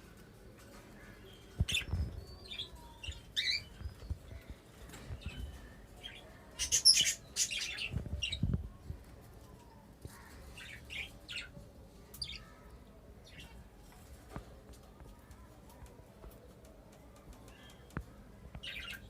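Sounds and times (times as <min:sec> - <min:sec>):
birds chirping: 0:00.7 - 0:08.8, 0:16.3 - 0:19.0.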